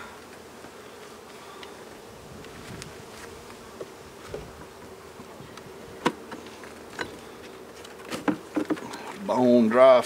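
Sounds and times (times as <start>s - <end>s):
bees buzzing: 0.0s - 10.0s
knocks of hive parts handled: 3.8s - 9.2s.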